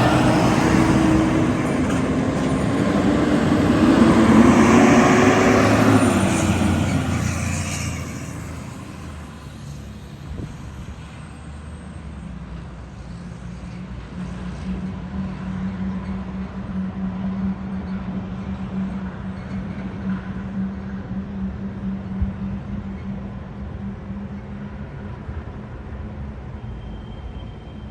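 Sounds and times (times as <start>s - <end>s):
large vehicle passing: 0.0s - 11.9s
low engine hum: 0.0s - 27.1s.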